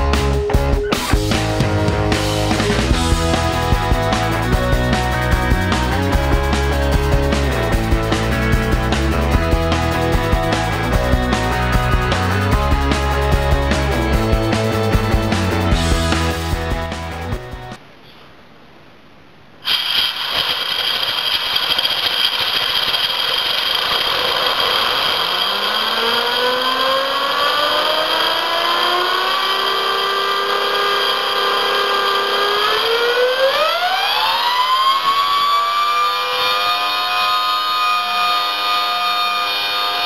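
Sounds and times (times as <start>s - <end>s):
model turbine whine: 1.0s - 17.8s, 19.6s - 40.0s
compressed air hissing: 19.6s - 25.6s.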